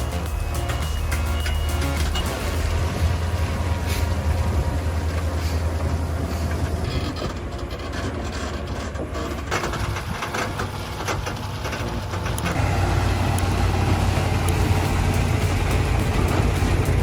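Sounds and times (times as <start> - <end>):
diesel machinery droning: 0.0 - 17.0
metallic clanking and rattling: 13.3 - 17.0.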